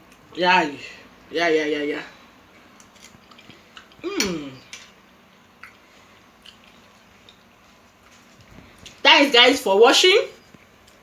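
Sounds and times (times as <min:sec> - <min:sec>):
wet chewing: 0:02.6 - 0:09.0
person humming mm: 0:04.0 - 0:04.7.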